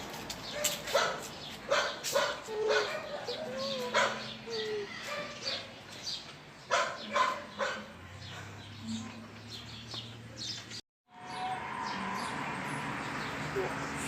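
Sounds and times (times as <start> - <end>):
dog barking: 0.6 - 4.4, 5.0 - 5.7, 6.7 - 8.5.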